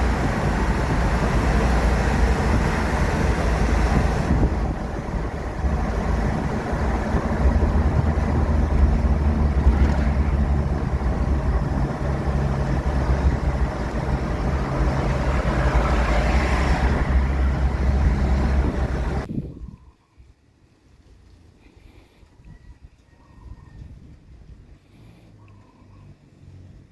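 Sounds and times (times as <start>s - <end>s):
car engine running: 0.0s - 19.3s.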